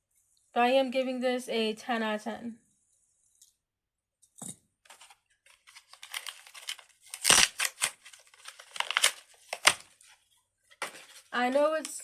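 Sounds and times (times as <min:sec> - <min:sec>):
crinkling and rustling: 0:04.4 - 0:12.0.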